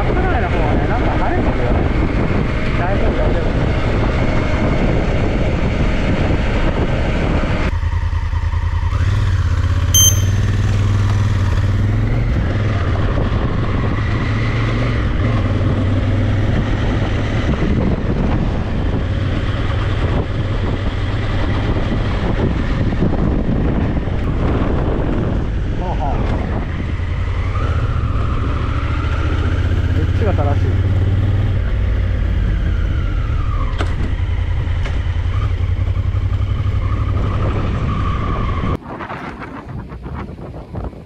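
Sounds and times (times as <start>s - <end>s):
wind noise on microphone: 0.0s - 7.8s, 10.0s - 30.0s, 31.0s - 41.0s
motorcycle engine running: 7.8s - 22.7s
short high electronic beep: 10.0s - 10.8s.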